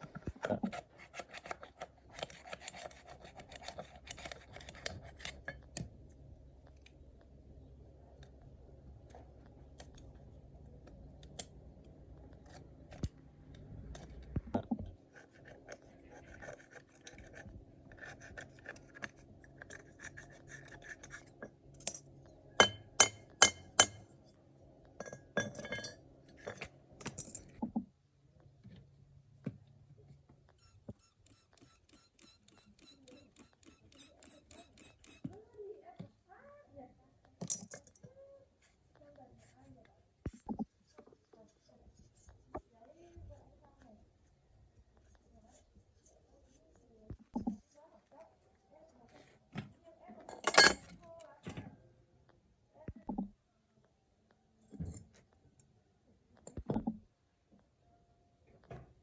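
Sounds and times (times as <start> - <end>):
clinks and scrapes of small parts: 0.0 - 5.9, 8.2 - 27.6, 30.5 - 35.4, 37.3 - 44.4, 45.0 - 51.7, 54.6 - 55.8
faint steady low hum: 0.0 - 59.0.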